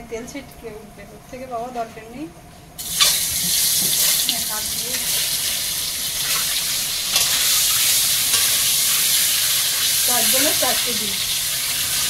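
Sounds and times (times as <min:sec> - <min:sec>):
food sizzling in hot oil: 0:02.8 - 0:12.0.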